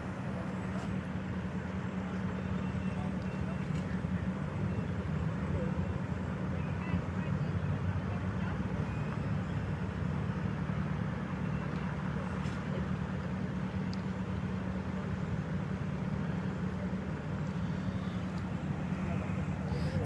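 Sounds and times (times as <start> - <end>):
road noise: 0.0 - 2.1, 7.9 - 20.0
vehicle engine humming: 0.0 - 2.5, 8.8 - 20.0.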